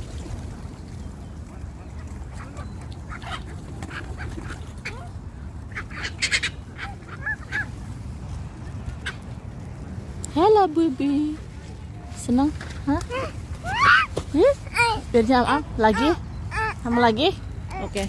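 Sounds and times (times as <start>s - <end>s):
birds giving sharp calls: 1.8s - 7.9s, 13.0s - 18.0s.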